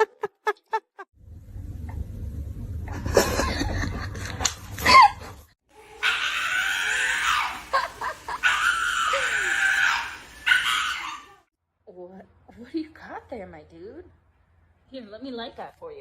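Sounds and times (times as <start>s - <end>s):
low rumbling noise: 1.2s - 4.1s
loud screaming cry: 5.8s - 11.5s.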